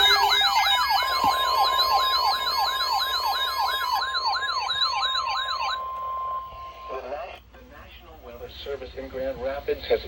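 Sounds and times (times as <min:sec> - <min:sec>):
siren-like sweeping alarm: 0:00.0 - 0:07.1
steady warning tone: 0:00.0 - 0:07.4.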